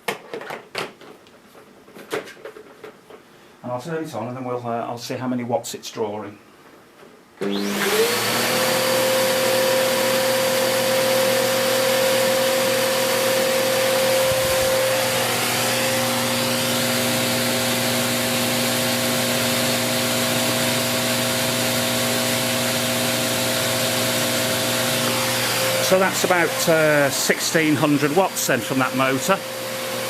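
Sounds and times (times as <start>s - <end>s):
vacuum cleaner motor whine: 7.4s - 30.0s.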